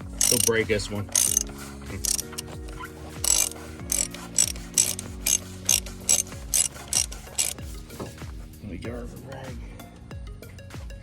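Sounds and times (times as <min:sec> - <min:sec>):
socket ratchet clicking: 0:00.0 - 0:07.6.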